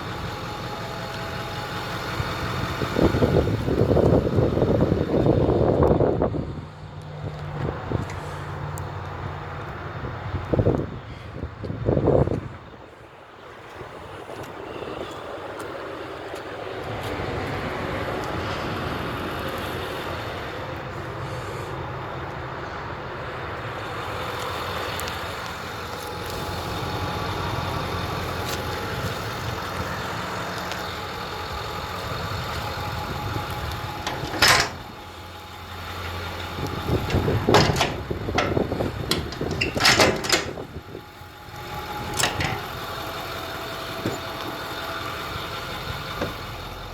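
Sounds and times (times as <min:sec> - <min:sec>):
truck engine idling: 0:00.0 - 0:46.9
sharp clunk: 0:34.0 - 0:34.9, 0:37.0 - 0:40.7, 0:42.1 - 0:42.8
bangs and rattles: 0:34.0 - 0:35.1, 0:36.8 - 0:40.8, 0:42.0 - 0:42.8.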